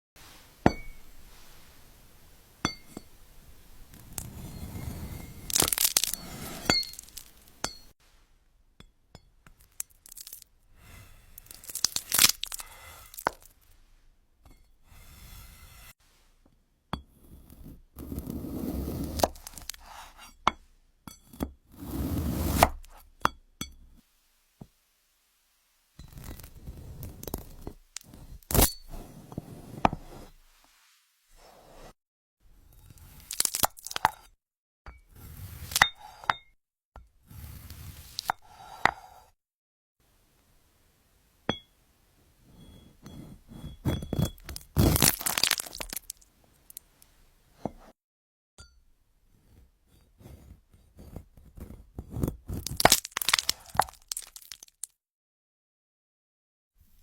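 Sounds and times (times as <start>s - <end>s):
knife cracking through crisp fruit: 5.4s - 6.2s, 11.4s - 13.5s, 33.2s - 34.1s, 44.4s - 46.2s, 52.5s - 54.9s.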